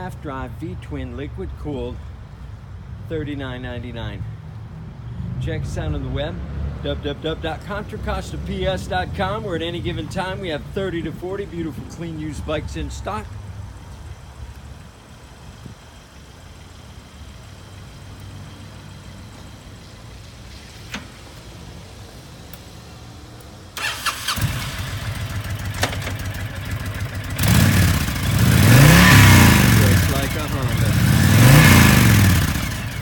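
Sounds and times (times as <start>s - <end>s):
motorcycle engine starting and revving: 23.7s - 33.0s.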